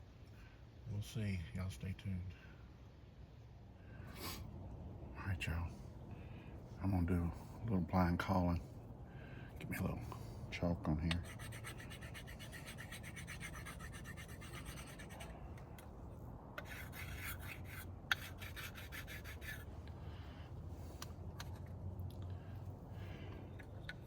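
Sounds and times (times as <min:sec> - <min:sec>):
chalk scraping on wooden call: 0:11.1 - 0:15.4, 0:16.6 - 0:19.7.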